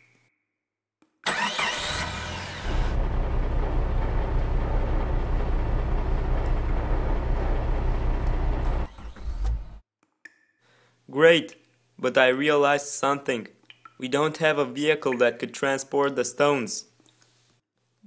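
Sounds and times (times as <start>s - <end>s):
low engine rumble: 2.6s - 9.8s.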